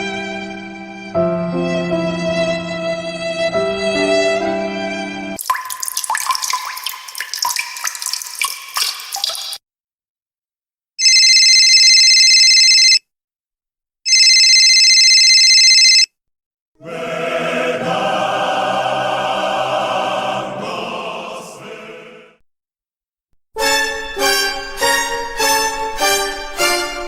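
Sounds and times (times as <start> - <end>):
telephone bell ringing: 11.0 - 13.0, 14.1 - 16.1
sustained choir-like chord: 16.8 - 22.4.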